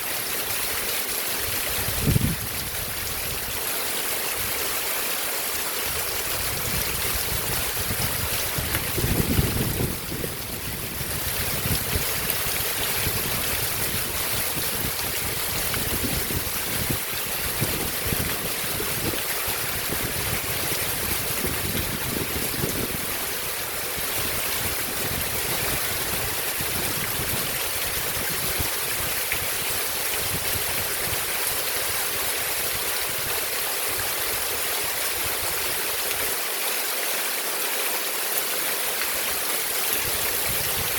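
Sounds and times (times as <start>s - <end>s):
heavy rain hissing: 0.0s - 40.9s.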